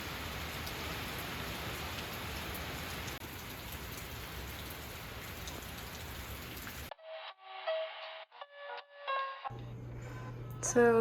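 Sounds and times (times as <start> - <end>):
heavy rain falling: 0.0 - 6.9.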